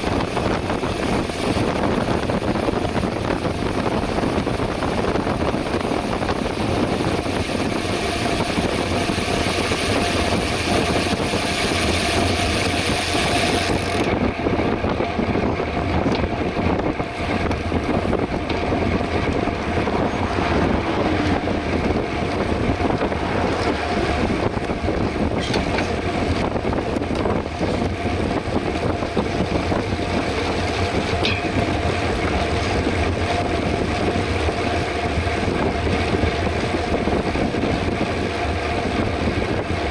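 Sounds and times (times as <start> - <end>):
bike tyre rumble: 0.0 - 39.9
wind rushing over microphone: 0.0 - 39.9.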